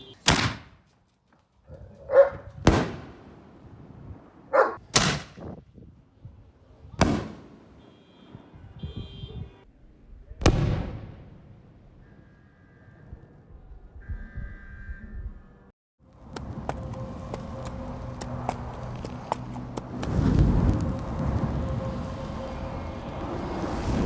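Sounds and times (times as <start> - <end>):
fireworks bangs: 0.0 - 0.8, 2.5 - 3.8, 4.8 - 5.5, 7.0 - 8.6
dog barking: 1.7 - 2.5, 4.5 - 4.8.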